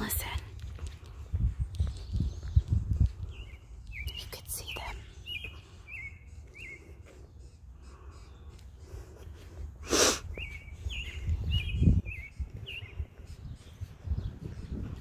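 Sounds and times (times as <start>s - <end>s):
songbirds chirping: 0.0s - 15.0s
burst of breathy noise: 9.8s - 10.3s.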